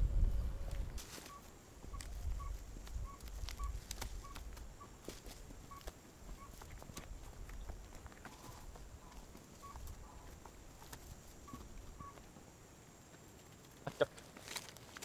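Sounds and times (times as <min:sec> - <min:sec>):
bird chirping: 0:00.0 - 0:05.0.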